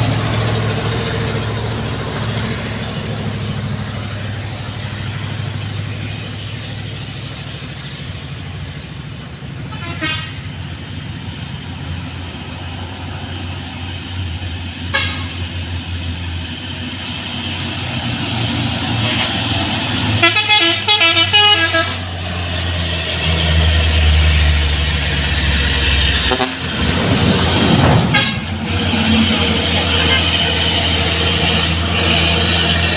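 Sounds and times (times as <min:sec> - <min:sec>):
truck engine under load: 0:00.0 - 0:32.9
horn tooting: 0:09.7 - 0:10.5, 0:14.9 - 0:15.4, 0:19.0 - 0:19.5, 0:20.2 - 0:22.1, 0:26.2 - 0:26.8, 0:27.9 - 0:28.7, 0:29.3 - 0:31.0.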